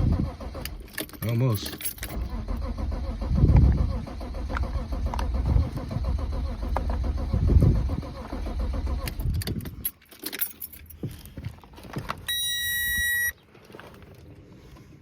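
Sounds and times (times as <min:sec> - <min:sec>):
car engine cranking: 0:00.0 - 0:14.0
keys jingling: 0:00.8 - 0:02.2, 0:09.0 - 0:13.2
electronic warning beep: 0:12.3 - 0:13.4.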